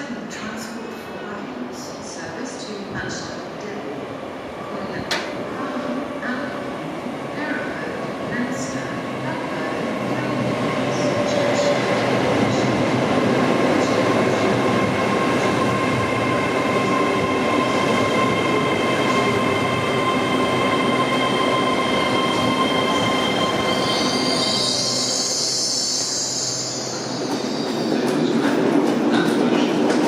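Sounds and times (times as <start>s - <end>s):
train wheels rumbling on rail: 26.7s - 30.0s.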